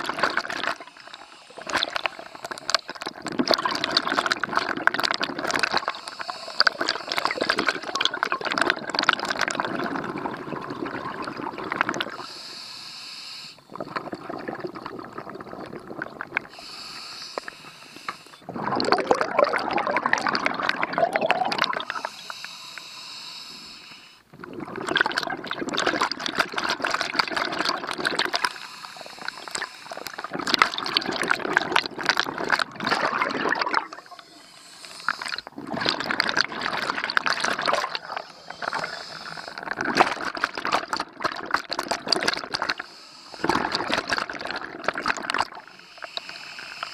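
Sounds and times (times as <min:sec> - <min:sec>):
regulator hiss on inhale: 0:00.8 - 0:03.0, 0:05.8 - 0:07.4, 0:12.1 - 0:13.8, 0:16.5 - 0:18.5, 0:21.8 - 0:24.3, 0:28.3 - 0:30.4, 0:33.8 - 0:35.5, 0:38.0 - 0:39.8, 0:42.7 - 0:43.5, 0:45.6 - 0:46.9
bubbling exhaust: 0:06.6 - 0:12.2, 0:13.7 - 0:17.2, 0:18.4 - 0:22.6, 0:24.2 - 0:46.9.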